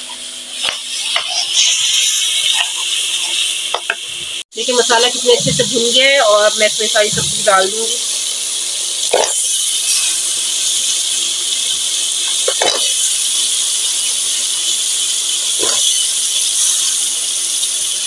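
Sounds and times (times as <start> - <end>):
masala sizzling in a pan: 0.2 - 18.0
vegetables added to pan: 12.3 - 13.4.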